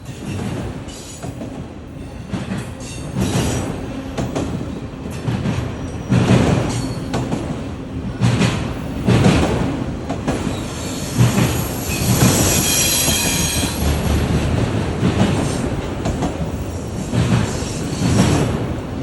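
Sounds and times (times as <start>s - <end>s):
train wheels knocking over joints: 0.2s - 18.9s
high-pitched wheel squeal: 10.5s - 13.8s.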